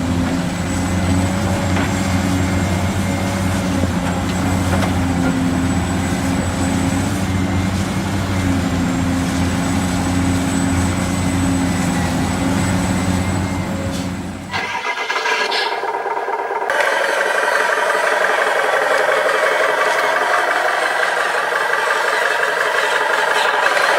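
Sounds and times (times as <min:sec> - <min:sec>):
toy vehicle motor hum: 0:14.6 - 0:23.9.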